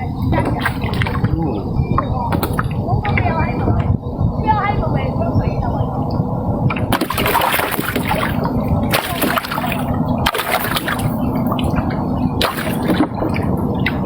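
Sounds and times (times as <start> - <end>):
steady low drone: 0.0 - 14.0
water sloshing against boat: 0.0 - 14.0
sharp splashes: 0.3 - 1.3, 6.7 - 14.0.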